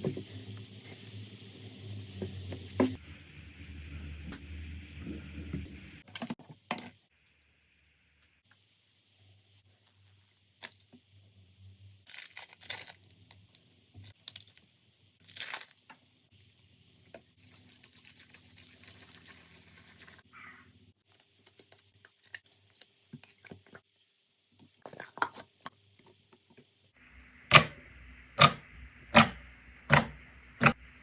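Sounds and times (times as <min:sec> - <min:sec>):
steady hiss: 0:27.0 - 0:31.0.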